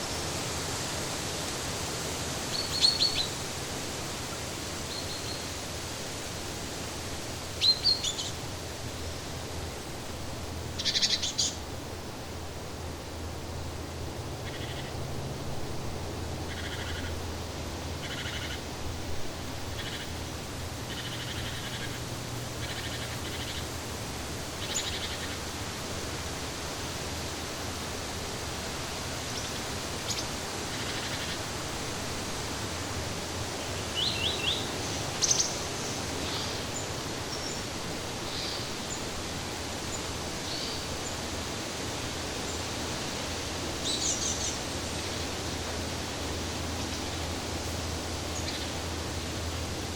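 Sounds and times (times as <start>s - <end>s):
steady background hiss: 0.0s - 49.9s
bird calls and chirps: 2.5s - 3.4s, 7.6s - 8.4s, 10.8s - 11.6s, 18.0s - 18.6s, 33.7s - 37.6s, 48.4s - 48.8s.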